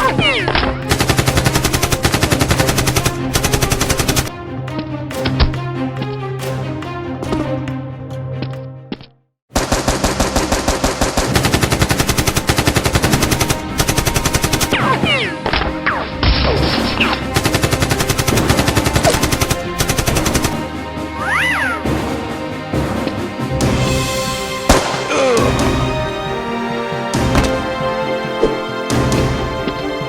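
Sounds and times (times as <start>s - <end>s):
automatic gunfire: 0.9s - 4.3s, 9.6s - 14.8s, 17.4s - 20.6s, 24.7s - 25.4s.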